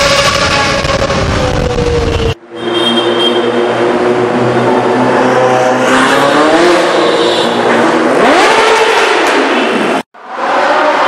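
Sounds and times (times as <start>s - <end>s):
car engine revving: 3.8s - 11.0s.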